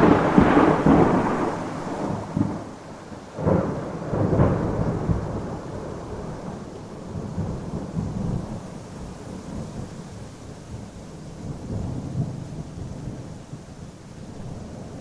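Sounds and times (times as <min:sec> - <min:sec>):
thunder rumbling: 0:00.0 - 0:10.0
steady rain: 0:00.0 - 0:15.0.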